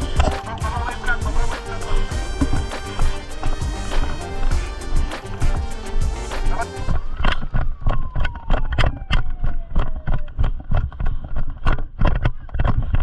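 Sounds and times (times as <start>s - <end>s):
quick steady beat thumps: 0.0s - 7.0s
background music: 0.0s - 8.2s
tone sliding downward: 0.0s - 10.3s.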